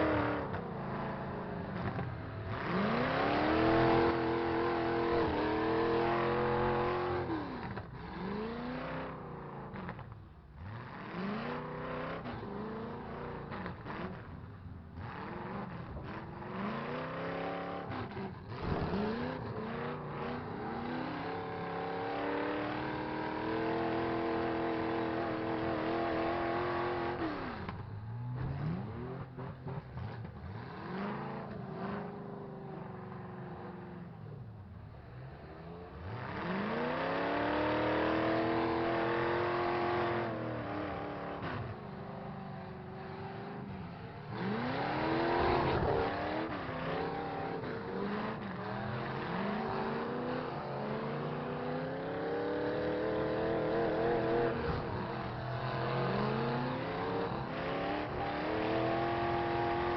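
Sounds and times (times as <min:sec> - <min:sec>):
truck engine revving hard: 0:00.0 - 0:09.9, 0:35.9 - 0:41.9, 0:43.0 - 0:59.9.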